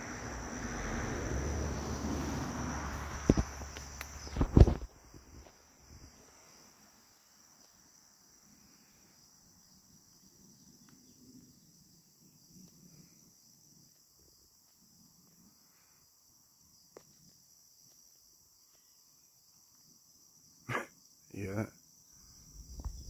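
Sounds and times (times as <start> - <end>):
rushing noise on microphone: 0.0 - 6.5
insects droning: 0.0 - 23.0
thumps on microphone: 4.3 - 4.9.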